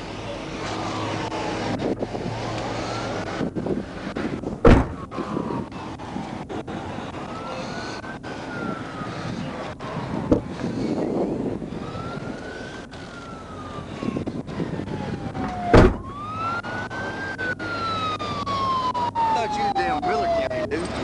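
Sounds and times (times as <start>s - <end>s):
siren wailing: 0.2s - 21.0s
loud thump: 4.6s - 5.1s, 15.7s - 16.1s.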